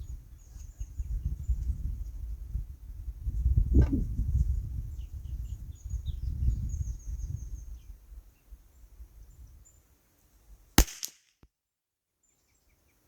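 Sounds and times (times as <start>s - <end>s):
wind buffeting microphone: 0.0s - 9.7s
small birds chirping: 4.3s - 9.9s
rifle shot with echo: 10.8s - 11.2s.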